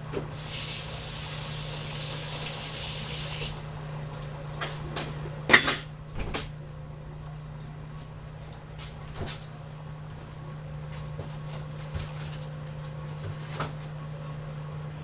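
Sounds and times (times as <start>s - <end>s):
steady low hum: 3.6s - 15.0s.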